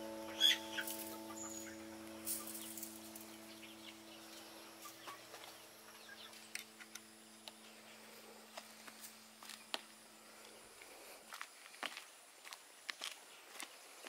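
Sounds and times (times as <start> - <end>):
held musical note: 0.0 - 6.0
poultry clucking: 0.0 - 6.8.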